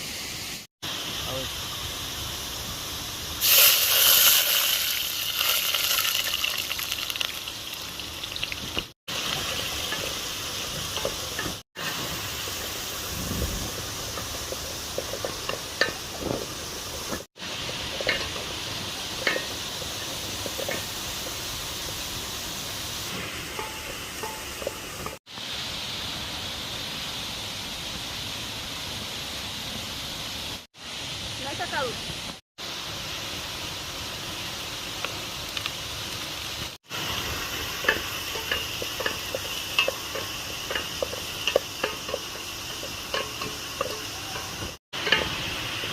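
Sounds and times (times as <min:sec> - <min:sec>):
food sizzling in a pot: 0:00.0 - 0:45.9
stirring clicks and scrapes: 0:37.7 - 0:45.4.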